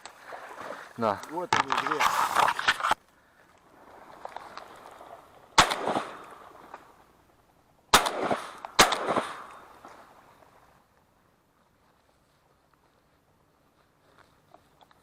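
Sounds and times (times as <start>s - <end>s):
shotgun shots with echo: 5.6s - 6.2s, 7.9s - 9.6s.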